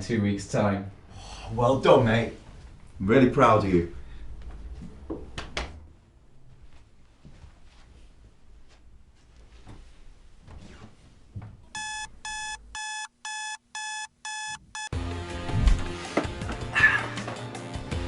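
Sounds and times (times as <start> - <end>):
alarm clock beeping: 11.8 - 15.0.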